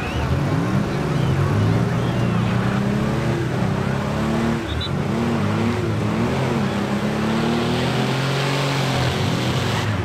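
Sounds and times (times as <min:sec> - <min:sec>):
van engines revving: 0:00.0 - 0:10.0.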